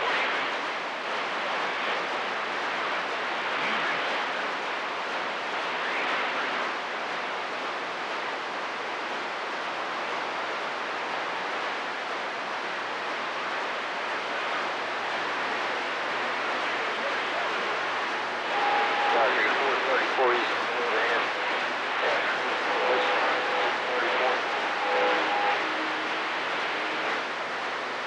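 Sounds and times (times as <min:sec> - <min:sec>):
radio static hiss: 0:00.0 - 0:28.0.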